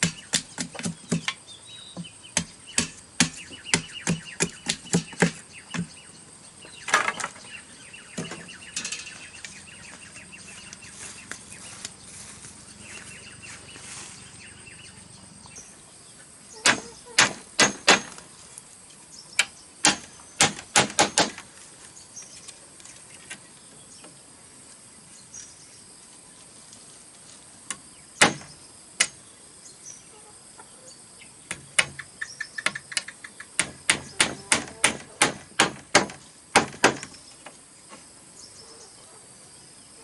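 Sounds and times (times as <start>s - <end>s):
hand tool knocking bamboo: 0.0s - 1.4s, 2.0s - 5.9s, 19.8s - 21.4s, 32.6s - 37.1s.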